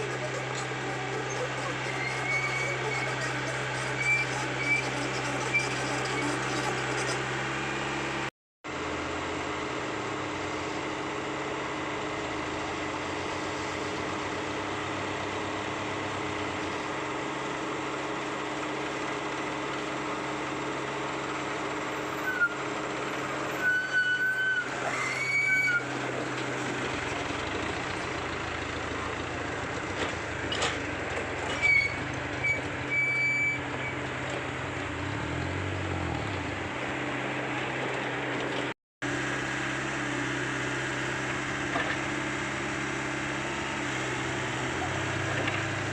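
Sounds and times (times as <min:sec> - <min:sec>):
high-pitched squeals: 0:00.0 - 0:07.3, 0:23.4 - 0:25.9, 0:31.4 - 0:34.1
excavator diesel engine running: 0:00.0 - 0:45.9.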